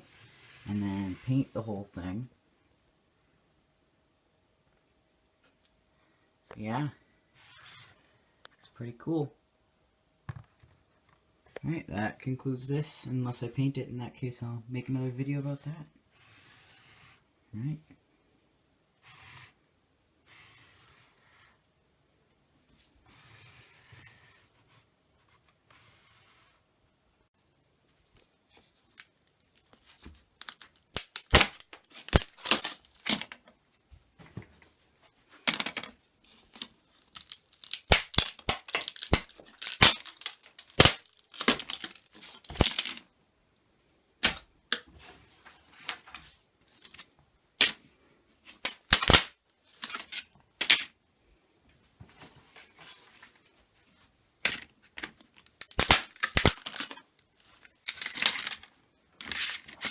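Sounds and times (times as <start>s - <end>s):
rustling and scraping: 44.8s - 47.2s, 51.8s - 55.2s, 56.6s - 59.9s.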